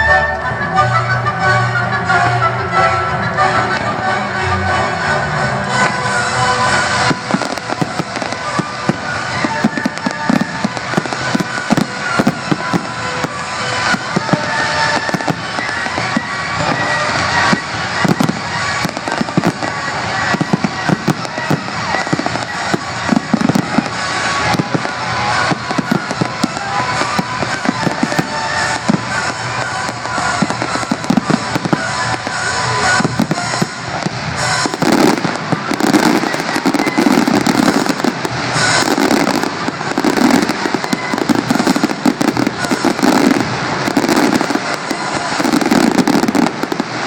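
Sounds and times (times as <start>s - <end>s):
fireworks bangs and crackling: 0.0s - 47.0s
loud music over sound system: 0.0s - 47.0s.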